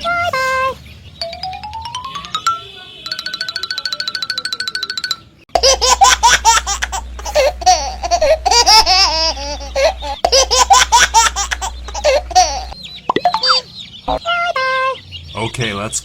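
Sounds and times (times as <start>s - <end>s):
high-pitched giggling laughter: 5.6s - 12.8s.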